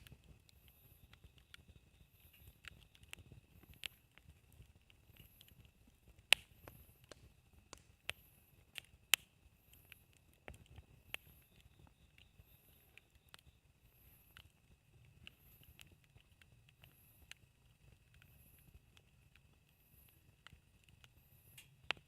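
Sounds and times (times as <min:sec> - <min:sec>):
faint steady high tone: 0:00.0 - 0:04.0, 0:09.5 - 0:18.8
campfire crackling: 0:00.0 - 0:22.0.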